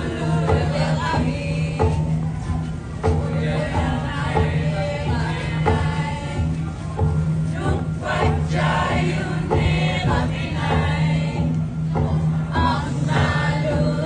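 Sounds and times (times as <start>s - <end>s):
group of voices singing: 0.0s - 14.0s
steady low tone: 0.0s - 14.0s.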